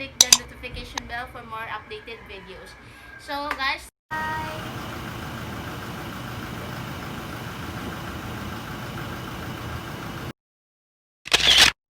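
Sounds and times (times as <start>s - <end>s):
car engine idling: 4.1s - 10.3s.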